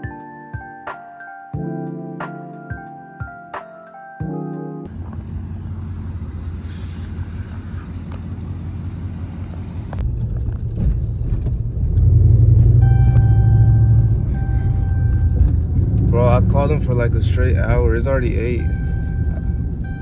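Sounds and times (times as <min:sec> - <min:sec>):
truck engine and road rumble: 0:04.9 - 0:20.0
steady high tone: 0:12.8 - 0:20.0.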